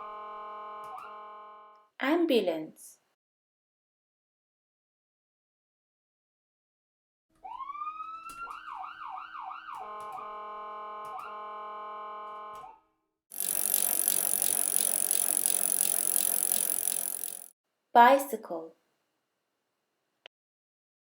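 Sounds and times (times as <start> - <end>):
ambulance siren wailing: 7.4 - 12.0.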